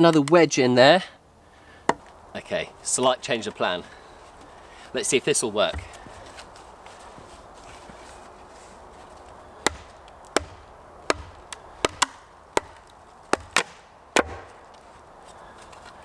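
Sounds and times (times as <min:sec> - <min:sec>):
hand tool striking wood: 0:05.7 - 0:06.1, 0:09.6 - 0:14.6.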